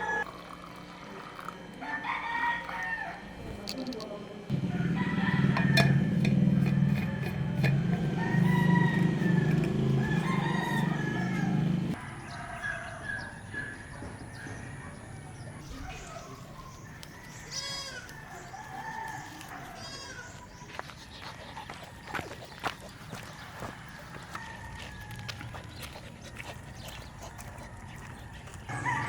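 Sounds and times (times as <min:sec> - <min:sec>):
roosters crowing: 0:00.0 - 0:00.3, 0:01.6 - 0:03.4, 0:04.5 - 0:25.7, 0:27.5 - 0:29.0
loud low hum: 0:03.3 - 0:12.0.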